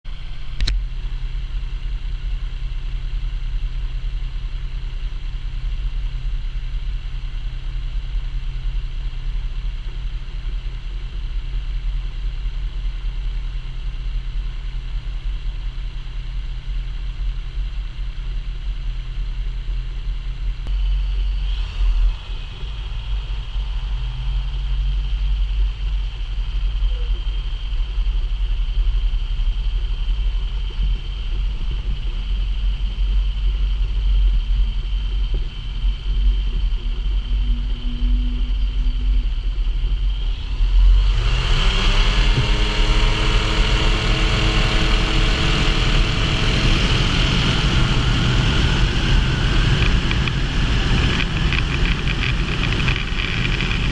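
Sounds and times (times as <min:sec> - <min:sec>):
aircraft engine droning: 0:20.6 - 0:53.9
wind noise: 0:20.7 - 0:53.9.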